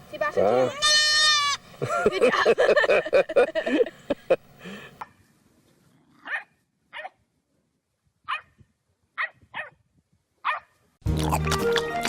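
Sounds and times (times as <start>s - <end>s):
dog barking: 6.2s - 7.2s, 8.3s - 8.6s, 9.2s - 9.8s, 10.4s - 10.7s.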